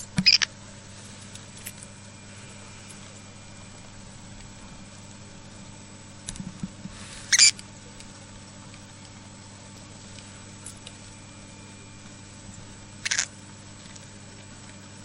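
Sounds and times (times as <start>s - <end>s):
steady low hum: 0.0s - 15.0s
cockatiel hissing: 7.0s - 7.6s.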